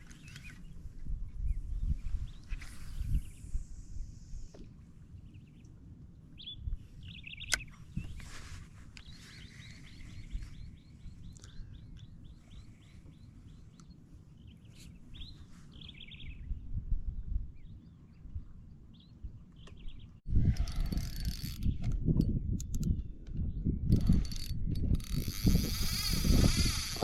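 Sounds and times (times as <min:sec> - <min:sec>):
wind: 0:00.0 - 0:27.0
birds chirping: 0:06.4 - 0:08.3, 0:08.9 - 0:16.5
water: 0:24.3 - 0:27.0.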